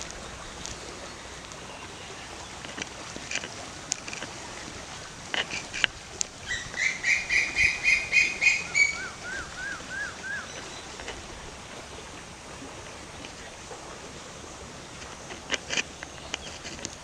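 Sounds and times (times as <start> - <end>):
bird calling: 0.0 - 12.0
steady outdoor hiss: 0.0 - 17.0
short up-and-down bird notes: 6.4 - 10.9.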